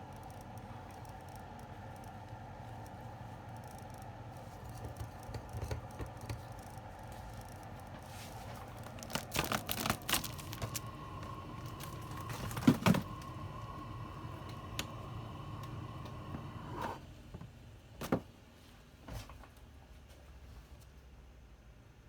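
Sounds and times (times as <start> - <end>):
faint steady whine: 0.0 - 17.4.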